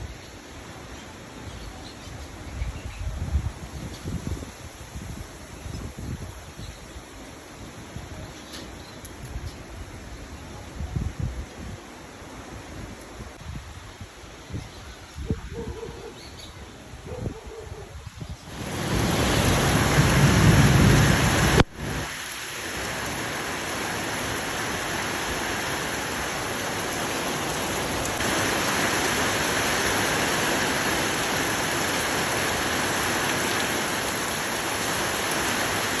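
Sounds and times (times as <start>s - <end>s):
heavy rain pouring: 18.5s - 36.0s.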